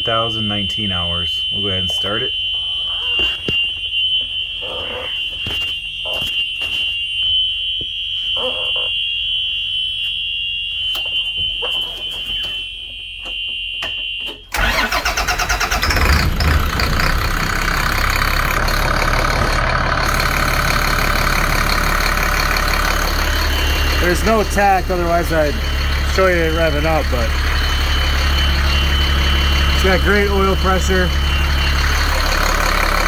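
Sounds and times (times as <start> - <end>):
high-pitched warning buzzer: 0.4 - 33.0
diesel engine cranking and idling: 14.5 - 33.0.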